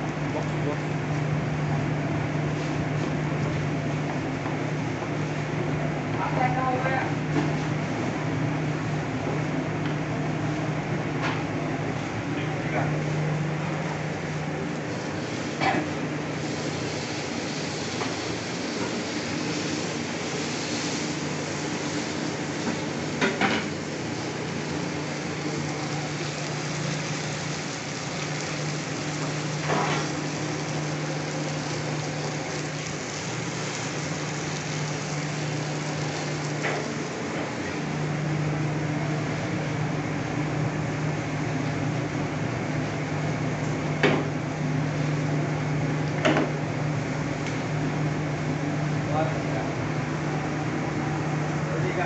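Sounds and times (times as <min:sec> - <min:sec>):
meat sizzling in a grill pan: 0:16.4 - 0:36.6.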